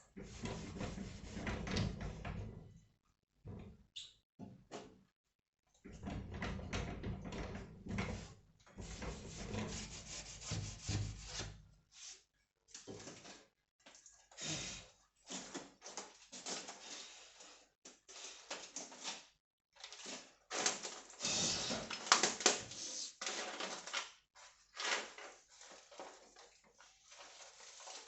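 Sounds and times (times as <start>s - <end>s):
scraping and rubbing by hand: 8.8s - 12.2s.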